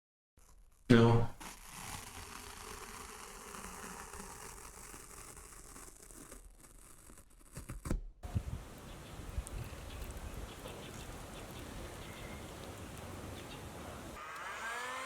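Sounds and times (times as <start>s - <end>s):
hot metal sizzling in liquid: 1.4s - 7.2s.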